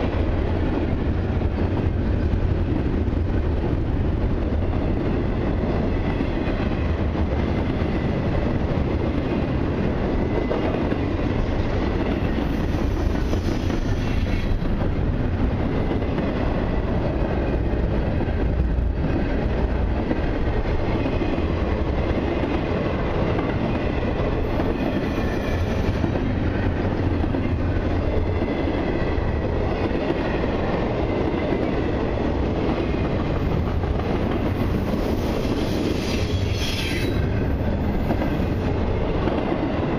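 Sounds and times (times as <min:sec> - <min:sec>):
train wheels clacking on rails: 0:00.0 - 0:39.9
high-pitched wheel squeal: 0:35.4 - 0:37.3.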